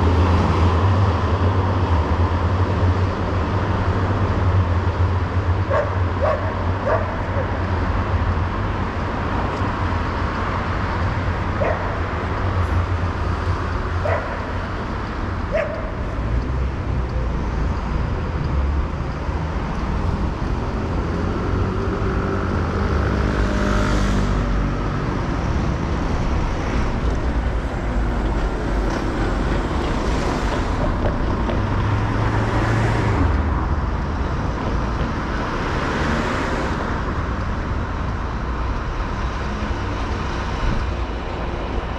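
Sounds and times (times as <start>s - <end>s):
low traffic rumble: 0.0s - 41.9s
dog barking: 5.7s - 7.6s, 11.6s - 12.1s, 14.0s - 14.5s, 15.5s - 16.0s
cars passing with tyre hiss: 21.6s - 41.9s.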